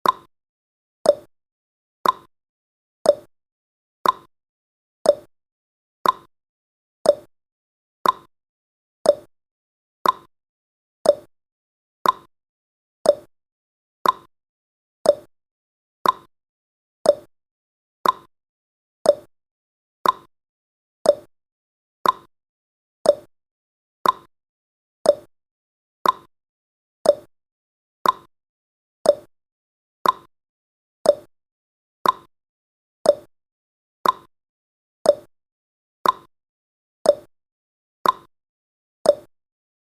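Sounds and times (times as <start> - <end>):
countdown timer ticking: 7.1 - 7.3, 9.1 - 9.3, 11.1 - 11.3, 13.1 - 13.3, 15.1 - 15.3, 17.1 - 17.3, 19.1 - 19.3, 21.1 - 21.3, 23.1 - 23.3, 24.0 - 24.3, 25.1 - 25.3, 26.0 - 26.3, 27.0 - 27.3, 28.0 - 28.3, 29.1 - 29.3, 30.0 - 30.3, 31.1 - 31.3, 32.0 - 32.3, 33.1 - 33.3, 34.0 - 34.3, 35.1 - 35.3, 36.0 - 36.3, 37.1 - 37.3, 38.0 - 38.3, 39.1 - 39.3.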